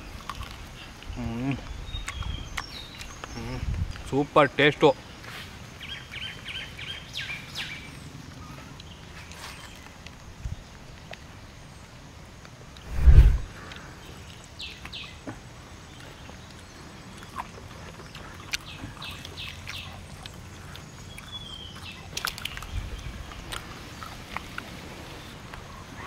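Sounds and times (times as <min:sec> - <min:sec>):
brief low rumble: 0:12.8 - 0:13.5.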